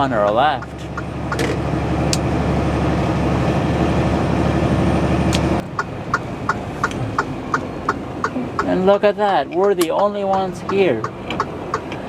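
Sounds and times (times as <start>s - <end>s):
diesel truck engine: 0.0s - 12.0s
turn signal clicking: 0.2s - 2.2s, 5.3s - 8.8s, 9.5s - 12.0s.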